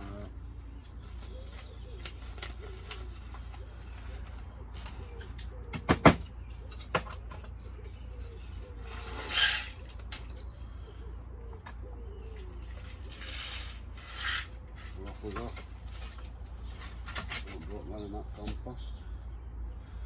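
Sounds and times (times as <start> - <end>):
pigeon cooing: 0.0 - 16.4
sharp knocks: 5.7 - 6.2.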